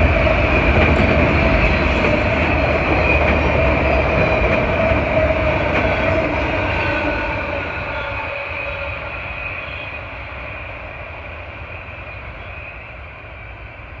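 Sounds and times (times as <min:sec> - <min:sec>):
freight train wheels on rails: 0:00.0 - 0:14.0.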